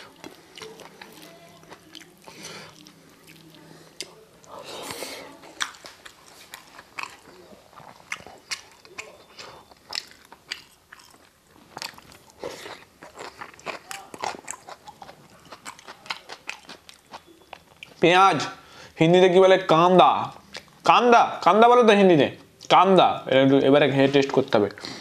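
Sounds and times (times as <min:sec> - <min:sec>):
crunches while chewing: 0:00.0 - 0:18.0
person chewing food: 0:00.0 - 0:18.0, 0:20.2 - 0:20.8.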